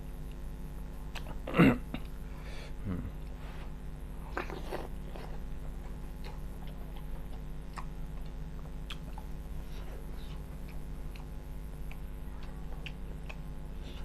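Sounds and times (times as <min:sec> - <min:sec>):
puffs of breath: 0:02.3 - 0:02.8
chewing with wet smacks: 0:04.3 - 0:14.0.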